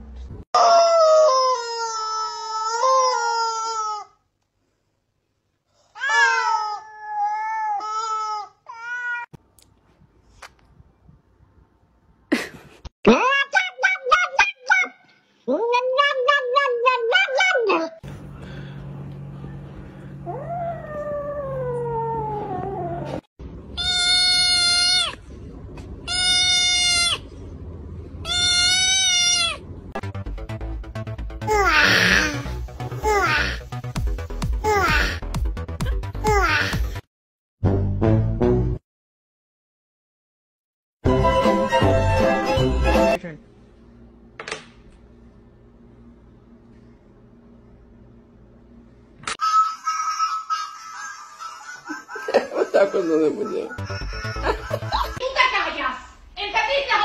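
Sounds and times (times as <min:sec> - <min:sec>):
cat yowling: 0:06.0 - 0:09.3, 0:15.6 - 0:18.0, 0:28.2 - 0:29.6
rubber chicken toy screaming: 0:23.8 - 0:25.2, 0:26.1 - 0:27.2, 0:28.2 - 0:29.6, 0:49.4 - 0:51.7.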